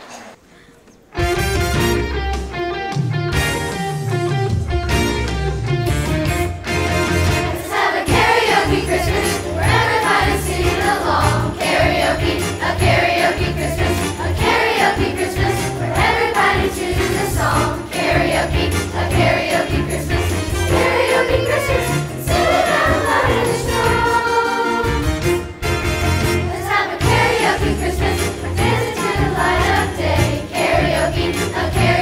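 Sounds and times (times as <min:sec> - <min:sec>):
band accompaniment: 0:01.2 - 0:32.0
chorus singing: 0:07.0 - 0:25.4, 0:26.2 - 0:32.0
chorus singing a christmas song: 0:07.3 - 0:25.3, 0:26.2 - 0:32.0.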